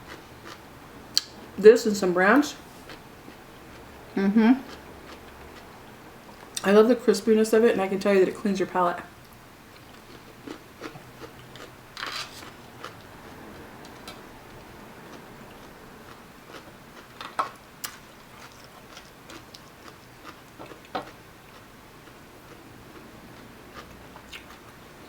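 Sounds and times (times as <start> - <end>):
chewing crunches and clicks: 15.5 - 22.6, 23.4 - 24.8.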